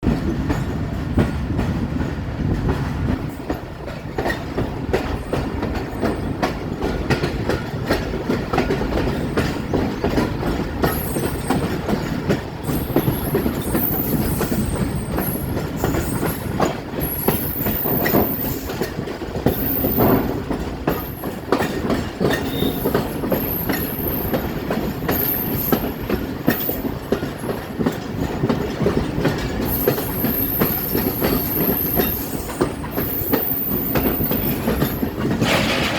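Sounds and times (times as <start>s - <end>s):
train rumble: 0.0s - 35.9s
train wheels clattering on rails: 0.0s - 35.9s
high wheel squeals: 22.4s - 24.4s.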